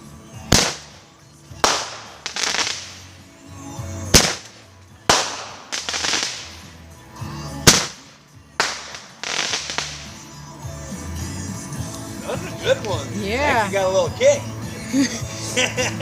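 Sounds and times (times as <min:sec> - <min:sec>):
fireworks crackling hiss: 0:00.0 - 0:10.5
fireworks bangs: 0:00.5 - 0:03.2, 0:04.1 - 0:06.7, 0:07.6 - 0:10.3.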